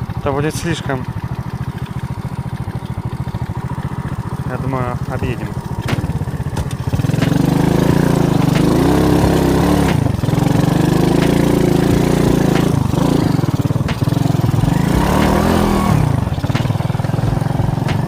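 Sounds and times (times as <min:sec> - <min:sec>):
moped engine revving: 0:00.0 - 0:18.0
knocks of bike jolting: 0:05.6 - 0:18.0.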